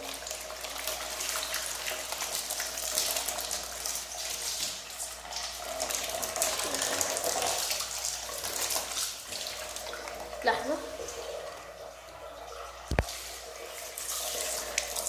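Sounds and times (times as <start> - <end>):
tap water splashing on birdcage: 12.9 - 13.2.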